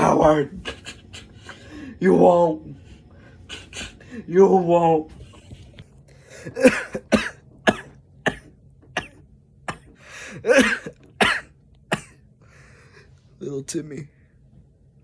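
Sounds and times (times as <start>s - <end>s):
person coughing: 6.4s - 12.2s.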